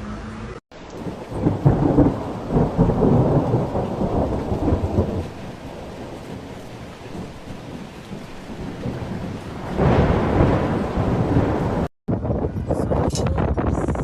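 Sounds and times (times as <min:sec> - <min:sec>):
steady heavy rain: 0:00.7 - 0:11.9.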